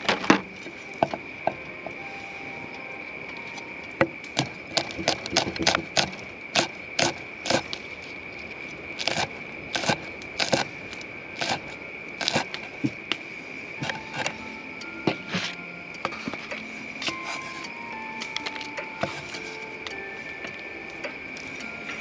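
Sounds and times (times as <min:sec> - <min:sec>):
high-pitched drone: 0:00.0 - 0:04.8, 0:12.5 - 0:22.0
sharp knocks and clicks: 0:04.0 - 0:06.2.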